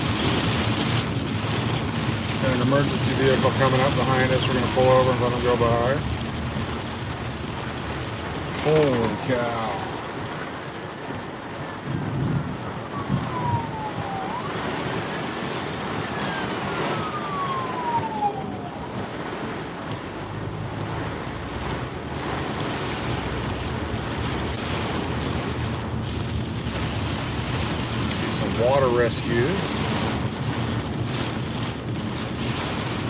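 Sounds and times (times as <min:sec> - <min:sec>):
rain hiss: 0:00.0 - 0:12.0
emergency vehicle siren wailing: 0:00.0 - 0:22.6, 0:27.6 - 0:33.0
road noise: 0:00.0 - 0:33.0.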